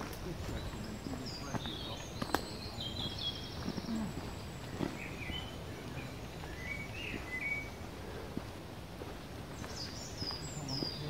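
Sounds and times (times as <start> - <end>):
low background noise: 0.0 - 11.0
small birds chirping: 0.0 - 11.0.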